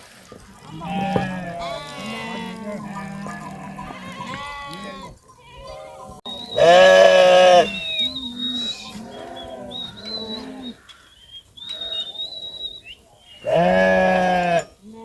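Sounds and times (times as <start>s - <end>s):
goats or sheep bleating: 0.3s - 10.8s, 13.4s - 15.0s.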